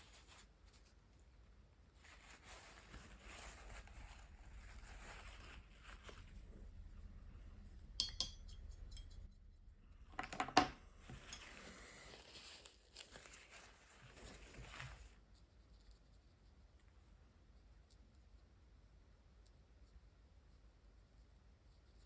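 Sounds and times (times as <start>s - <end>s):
markers clicking and clattering: 10.1s - 11.4s.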